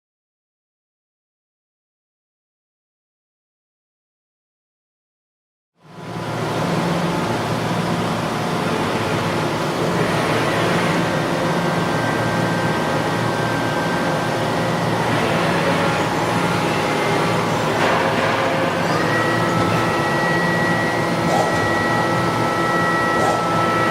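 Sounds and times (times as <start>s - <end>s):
machining center running: 5.8s - 23.9s.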